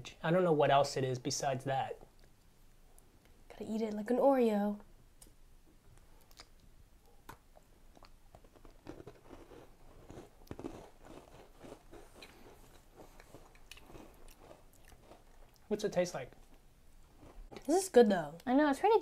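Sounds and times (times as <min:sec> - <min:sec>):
biscuit crunching and chewing: 0:07.3 - 0:15.7, 0:16.3 - 0:17.7.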